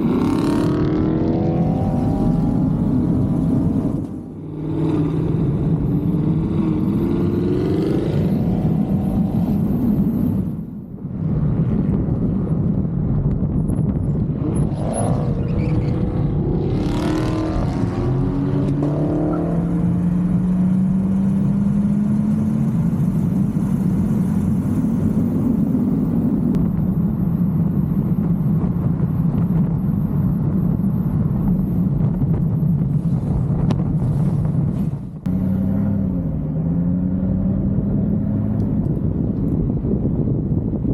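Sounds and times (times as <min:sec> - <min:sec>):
car engine accelerating: 0:35.2 - 0:39.8.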